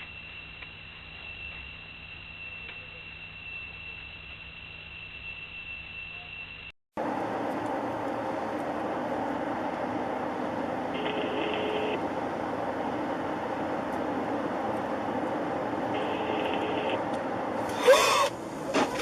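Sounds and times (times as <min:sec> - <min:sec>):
steady high whine: 0:00.0 - 0:19.0
car road and engine noise: 0:06.9 - 0:19.0.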